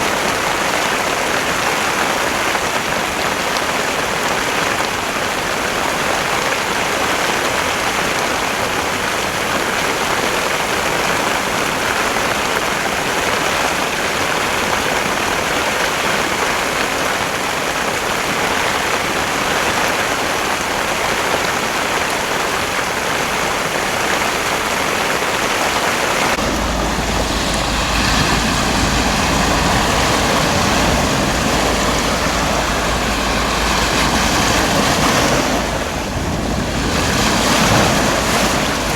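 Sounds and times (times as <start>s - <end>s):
heavy rain pouring: 0.0s - 38.9s
waves: 0.0s - 38.9s
wind rumbling on microphone: 24.9s - 38.9s.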